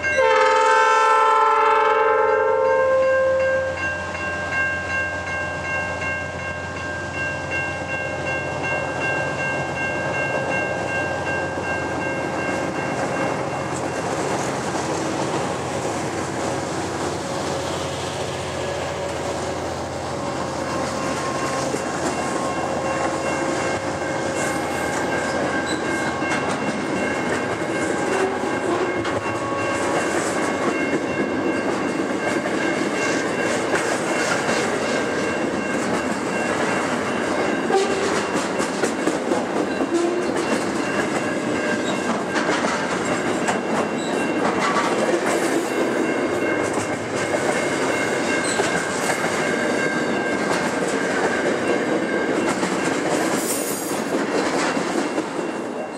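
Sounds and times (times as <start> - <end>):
train wheels rumbling: 3.7 - 55.9
wheels clacking over rail joints: 19.0 - 55.9.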